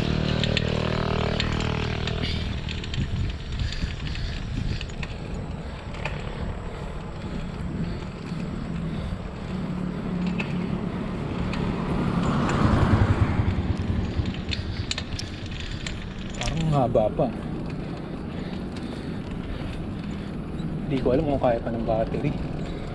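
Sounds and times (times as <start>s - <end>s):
bicycle tyre noise on road: 0.0s - 22.9s
small clicks and rattles: 0.0s - 22.9s
wind on microphone: 1.8s - 10.0s.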